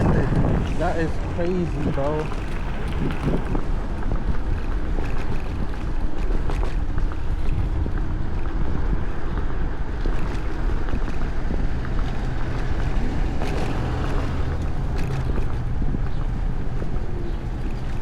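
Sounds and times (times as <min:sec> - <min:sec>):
low rumble: 0:00.0 - 0:18.0
wind buffeting microphone: 0:00.0 - 0:18.0.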